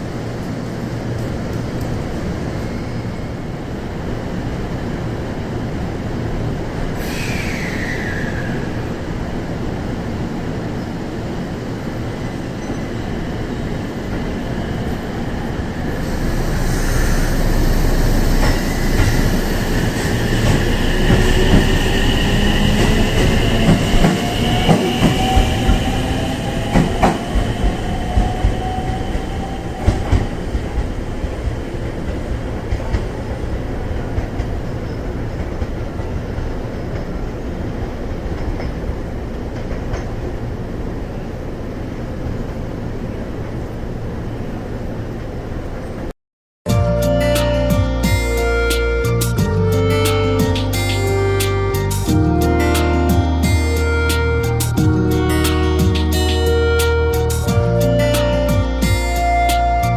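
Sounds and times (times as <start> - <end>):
electric train motors whining: 11.9 - 32.2
wheels clacking over rail joints: 17.4 - 40.4.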